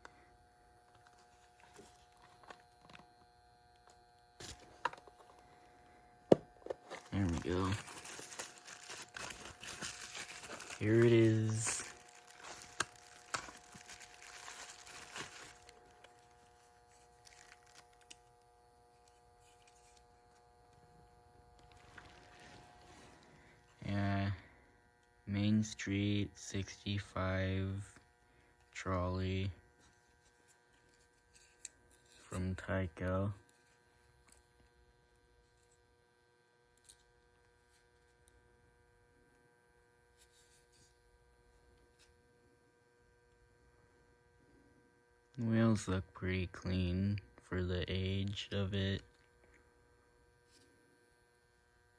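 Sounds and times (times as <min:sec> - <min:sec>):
faint steady hum: 0:00.0 - 0:51.9
packaging crinkling and rustling: 0:06.4 - 0:18.2, 0:21.6 - 0:23.5.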